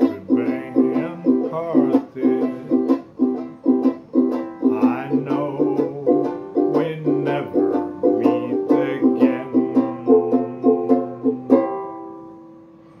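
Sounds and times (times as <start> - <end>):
strummed string instrument chords: 0.0 - 13.0.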